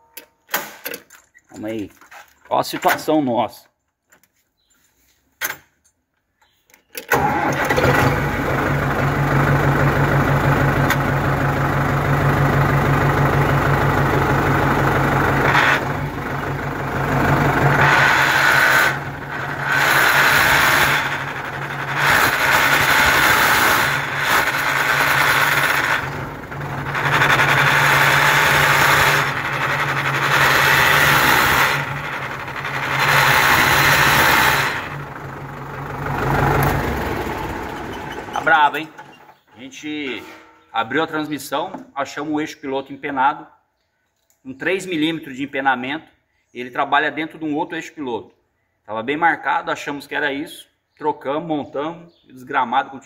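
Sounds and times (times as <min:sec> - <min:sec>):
tractor transmission noise: 0:06.4 - 0:40.2.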